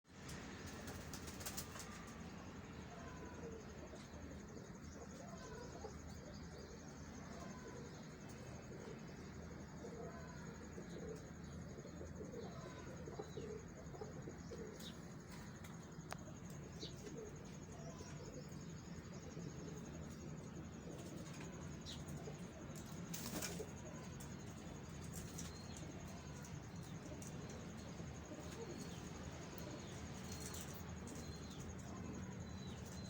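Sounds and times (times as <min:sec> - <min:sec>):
pigeon wings flapping: 0:00.6 - 0:02.1
pigeons cooing: 0:08.5 - 0:33.0.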